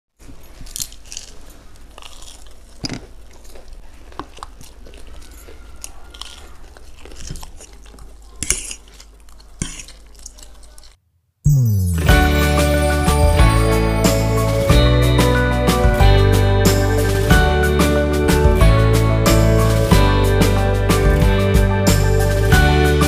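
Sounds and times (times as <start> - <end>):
crunchy bites and chewing: 0.2 - 11.0.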